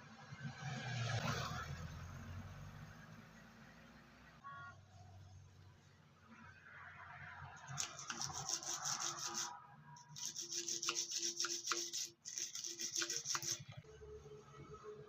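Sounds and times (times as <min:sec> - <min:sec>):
hand tool rasping tyre rubber: 0:07.7 - 0:13.8.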